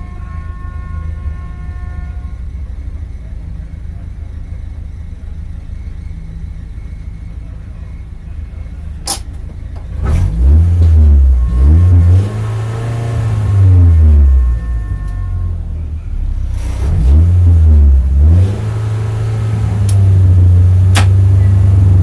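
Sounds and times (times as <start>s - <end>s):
car engine idling and revving: 0.0s - 22.0s
sharp click: 9.0s - 9.4s, 20.9s - 21.2s.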